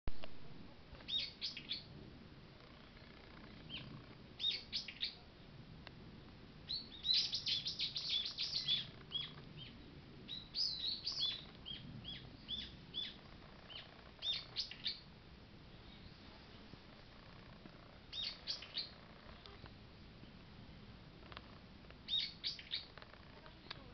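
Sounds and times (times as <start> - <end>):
small songbirds chirping: 1.0 - 2.0, 2.6 - 5.6, 6.2 - 23.9.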